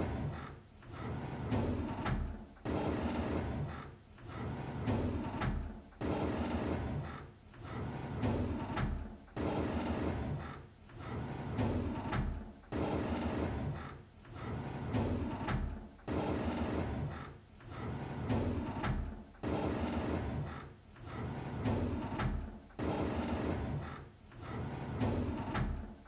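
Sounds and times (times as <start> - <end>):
drawer sliding open: 0.1 - 3.7, 11.0 - 13.7, 14.4 - 26.0.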